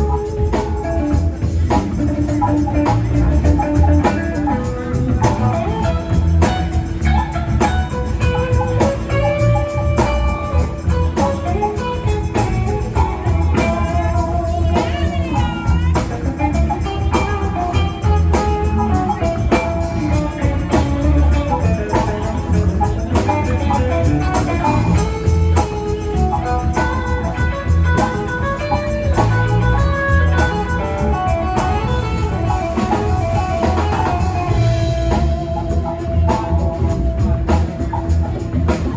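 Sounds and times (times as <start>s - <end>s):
bass guitar: 0.0s - 38.9s
drum kit: 0.0s - 38.9s
electric guitar: 0.0s - 38.9s
tambourine: 0.0s - 38.9s.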